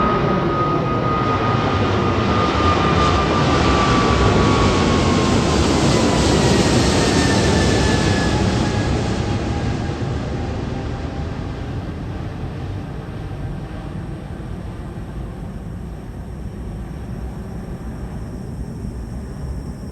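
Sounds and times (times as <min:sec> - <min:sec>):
jet airliner passing: 0:00.0 - 0:19.9.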